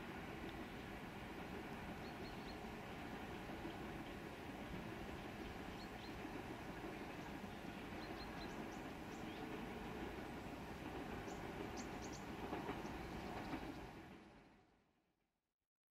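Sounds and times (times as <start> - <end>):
train carriages rumbling on rails: 0.0 - 14.4.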